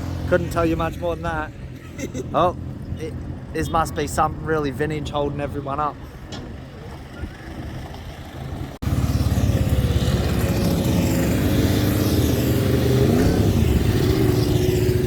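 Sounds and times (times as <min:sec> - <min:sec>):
vehicle engine driving past: 0:07.0 - 0:15.0.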